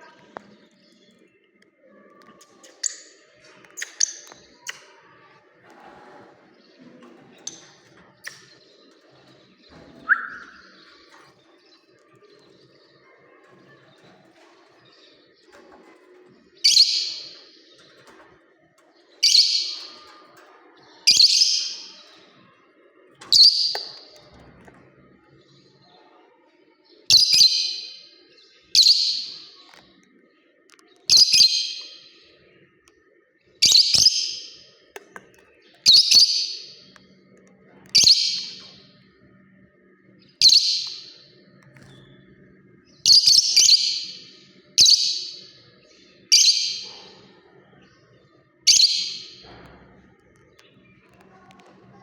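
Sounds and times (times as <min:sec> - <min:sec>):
lovebird calling: 0:10.0 - 0:10.8.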